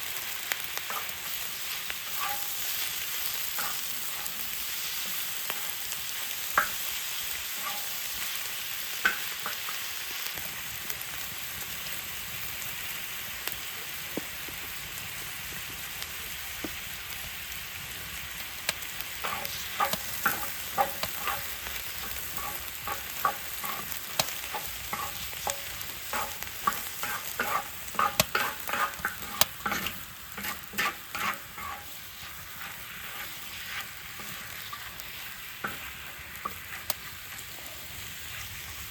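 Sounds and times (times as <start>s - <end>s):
food sizzling: 0.0s - 38.9s
utensil scraping metal lid: 26.2s - 31.9s.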